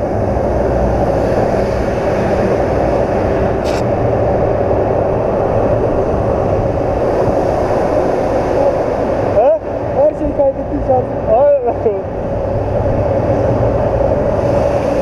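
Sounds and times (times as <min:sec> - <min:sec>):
wind noise: 0:00.0 - 0:15.0
brief click: 0:03.6 - 0:03.8.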